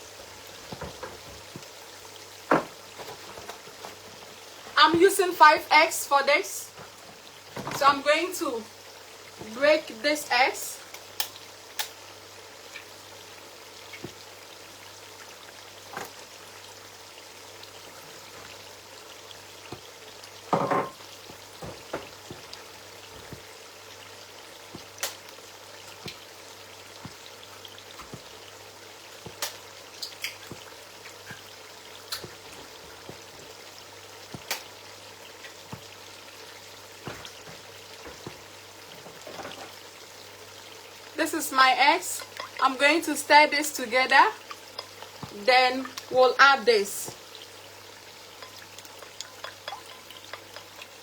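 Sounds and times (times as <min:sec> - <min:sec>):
stew sizzling in a pot: 0:00.0 - 0:51.0.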